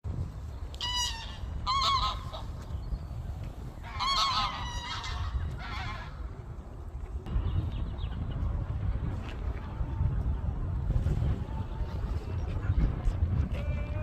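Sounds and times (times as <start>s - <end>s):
steady low rumble: 0.0s - 14.0s
ducks honking: 0.8s - 2.6s, 3.8s - 6.2s.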